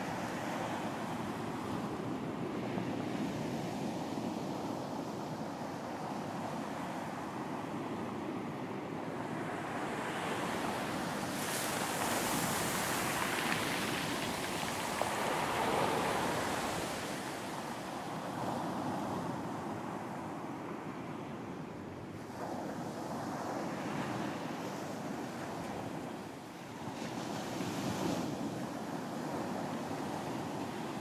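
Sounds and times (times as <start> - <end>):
sea waves breaking on beach: 9.2 - 20.2.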